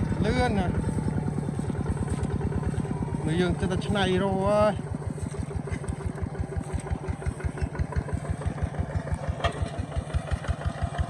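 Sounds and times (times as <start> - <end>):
diesel engine chugging: 0.0 - 11.0.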